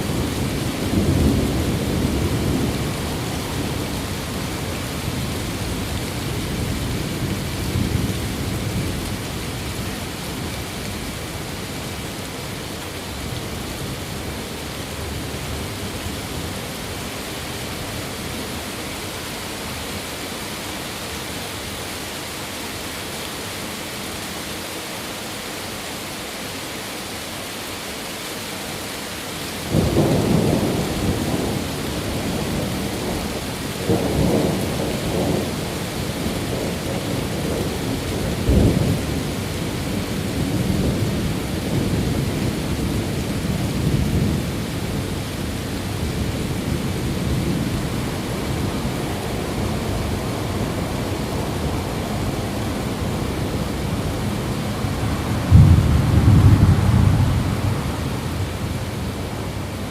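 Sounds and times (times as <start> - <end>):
rain hiss: 0.0 - 59.9
rolling thunder rumble: 29.7 - 59.9.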